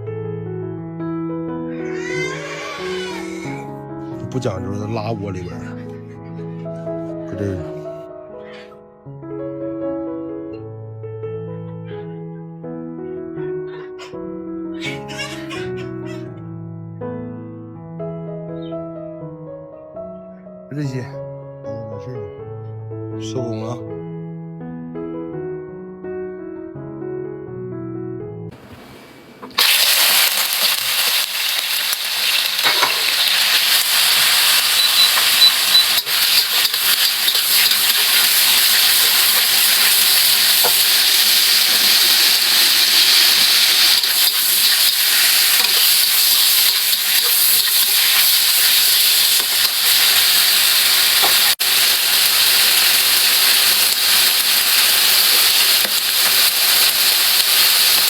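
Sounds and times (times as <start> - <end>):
food sizzling in a pan: 28.6 - 58.0.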